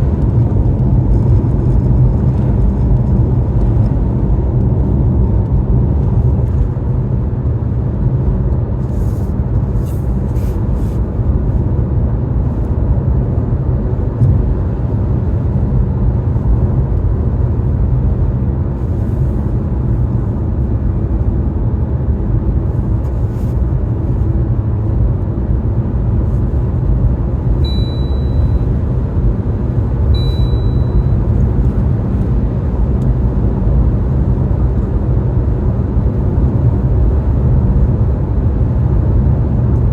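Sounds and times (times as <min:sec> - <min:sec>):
car driving rumble: 0:00.0 - 0:39.9
short high beeps: 0:27.6 - 0:28.7, 0:30.1 - 0:31.2.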